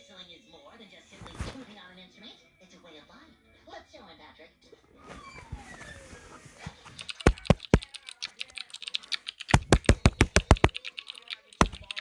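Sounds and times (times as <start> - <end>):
sharp knocks: 7.3 - 7.8, 9.6 - 10.7, 11.6 - 12.0.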